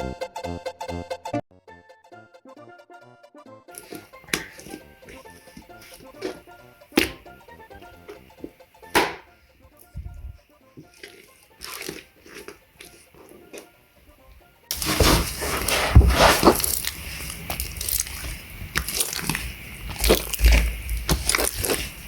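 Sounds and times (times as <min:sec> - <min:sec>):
slime crackling squish: 0:03.7 - 0:10.0, 0:10.8 - 0:13.8, 0:14.7 - 0:22.0.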